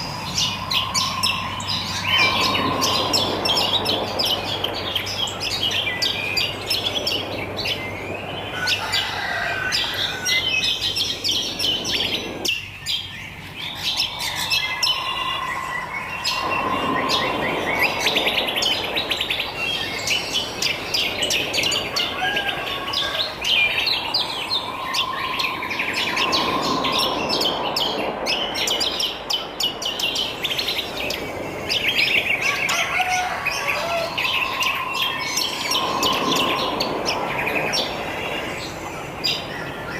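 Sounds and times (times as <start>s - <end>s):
lower steady bird note: 0.0s - 12.5s, 13.1s - 39.9s
birds chirping and singing: 0.0s - 39.9s.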